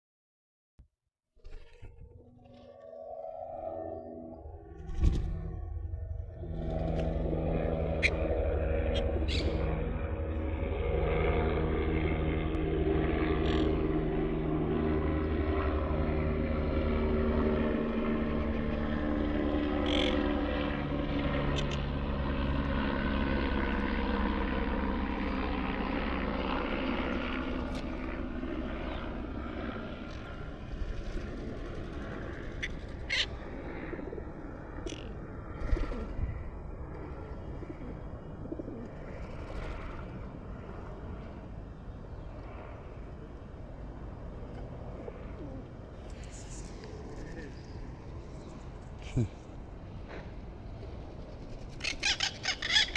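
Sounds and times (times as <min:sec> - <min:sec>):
engine drone: 0:01.4 - 0:52.9
sharp parrot calls: 0:51.8 - 0:52.9.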